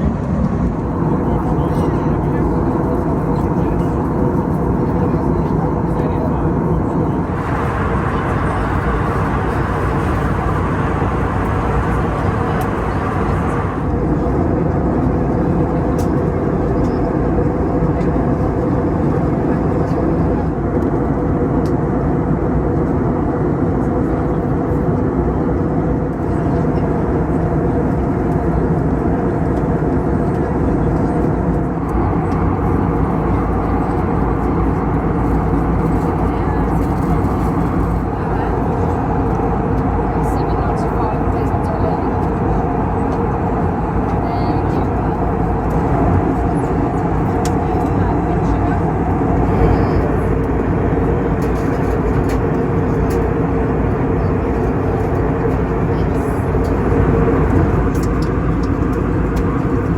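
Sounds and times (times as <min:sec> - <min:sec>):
steady hum: 0:00.0 - 0:14.3
airplane cabin engine rumble: 0:00.0 - 0:59.9.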